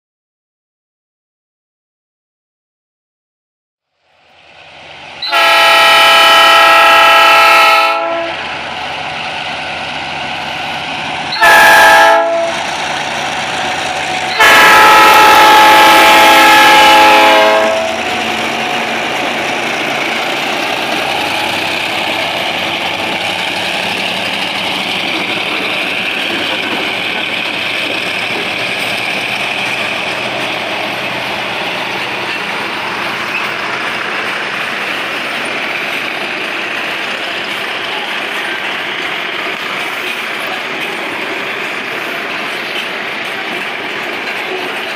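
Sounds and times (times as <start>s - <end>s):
wagons rumbling on rails: 4.4s - 44.9s
locomotive air horn: 5.2s - 8.4s, 11.3s - 12.6s, 14.3s - 18.0s
locomotive engines working: 12.5s - 44.9s.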